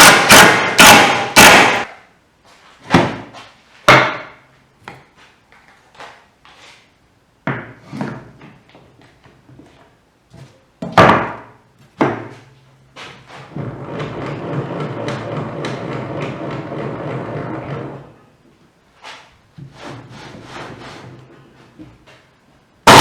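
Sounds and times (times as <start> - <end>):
loud wooden knocks: 0.0 - 1.9, 2.9 - 3.3, 3.9 - 4.4, 10.8 - 12.4, 13.5 - 18.0.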